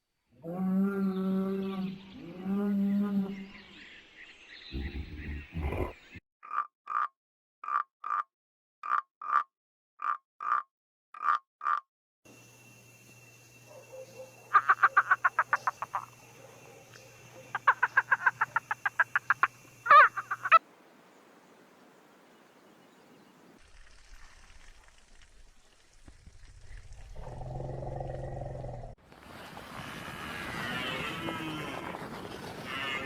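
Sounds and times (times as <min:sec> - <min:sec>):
animal calling in rapid pulses: 0:13.9 - 0:16.2, 0:17.0 - 0:20.6.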